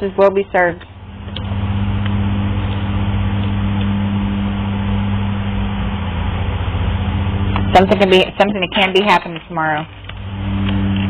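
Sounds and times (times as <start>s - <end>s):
motor drone with hiss: 0.9s - 8.5s, 10.0s - 11.0s.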